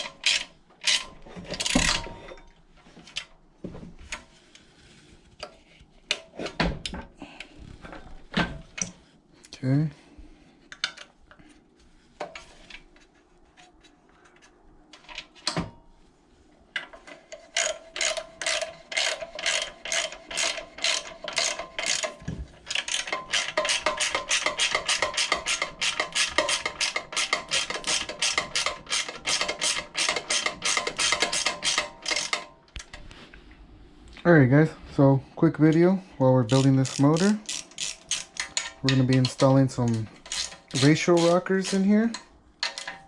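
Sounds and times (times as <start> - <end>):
ratchet wrench clicking: 17.6 - 32.5, 36.5 - 39.4, 40.2 - 41.9.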